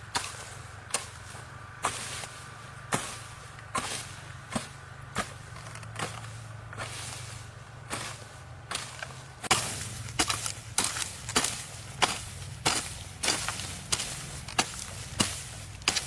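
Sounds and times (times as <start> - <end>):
hand tool striking wood: 0.1 - 1.2, 7.9 - 16.0.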